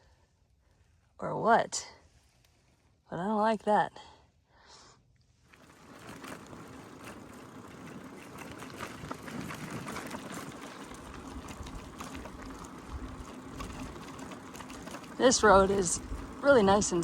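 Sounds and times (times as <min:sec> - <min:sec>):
bike tyres on dirt road: 0:05.4 - 0:17.0
ticks and rattles: 0:05.6 - 0:17.0.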